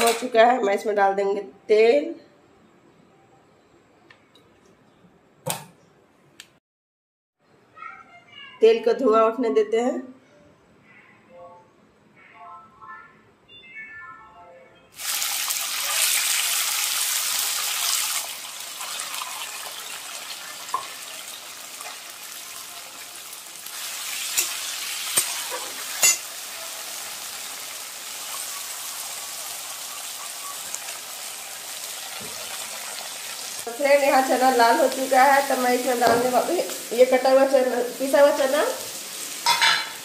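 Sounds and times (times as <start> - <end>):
chickpeas frying in hot oil: 15.0 - 40.0.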